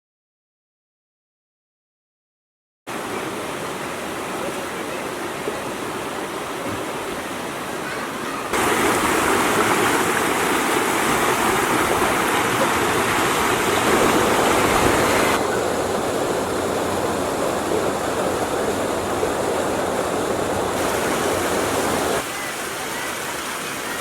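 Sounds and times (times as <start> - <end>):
stream rushing over rocks: 2.9 - 24.0.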